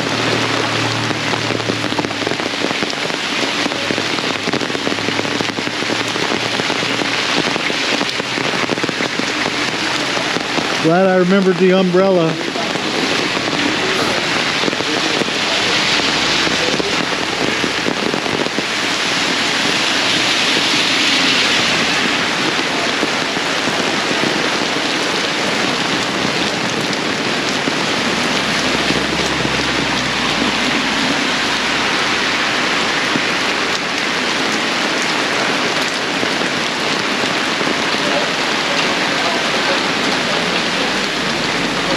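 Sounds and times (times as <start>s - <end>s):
heavy rain drumming on umbrella: 0.0s - 41.9s.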